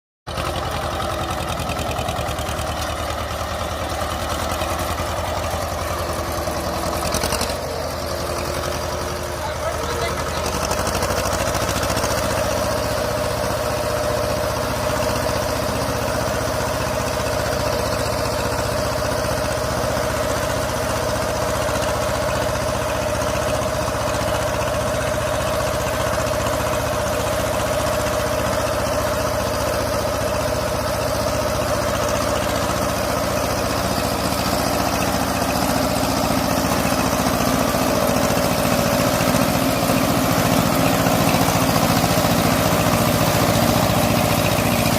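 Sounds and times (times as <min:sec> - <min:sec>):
tractor diesel engine running: 0:00.3 - 0:44.9.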